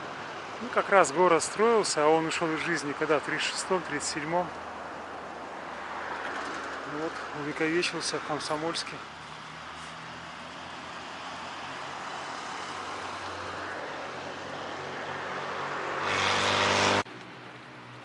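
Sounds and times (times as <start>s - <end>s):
vehicle passing close by: 9.4s - 17.1s.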